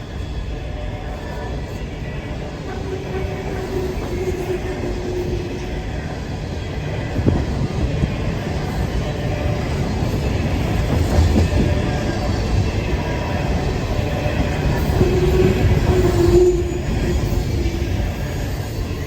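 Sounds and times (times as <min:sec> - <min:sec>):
train wheels rumbling on rails: 0:00.0 - 0:19.0
wheel squeal: 0:14.3 - 0:19.0.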